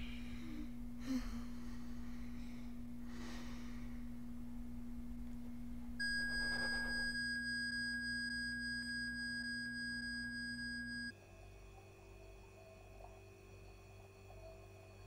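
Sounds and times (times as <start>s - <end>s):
low steady hum: 0.0s - 15.0s
high-pitched electronic tone: 6.0s - 7.2s.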